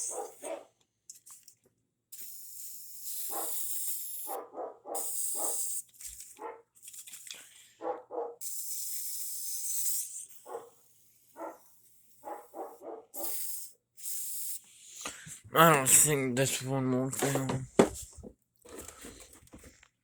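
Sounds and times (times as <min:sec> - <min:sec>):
dog barking: 0:00.0 - 0:00.8, 0:03.3 - 0:03.6, 0:04.3 - 0:05.7, 0:06.4 - 0:06.7, 0:07.8 - 0:08.4, 0:10.4 - 0:10.8, 0:11.4 - 0:13.4
aerosol spray hissing: 0:02.2 - 0:04.4, 0:05.0 - 0:05.9, 0:08.4 - 0:11.0, 0:13.2 - 0:15.3.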